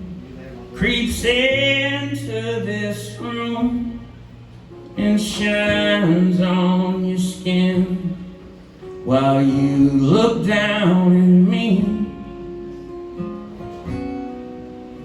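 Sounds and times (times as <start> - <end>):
man singing long notes: 5.0 - 8.4, 9.0 - 12.4.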